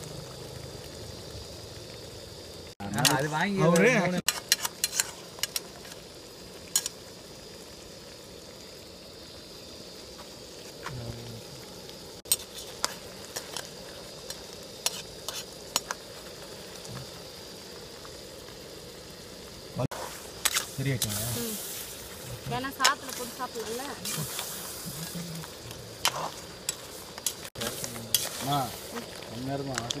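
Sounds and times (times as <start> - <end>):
curry sizzling in a pan: 0.0 - 30.0
sharp clicks and pops: 25.4 - 30.0.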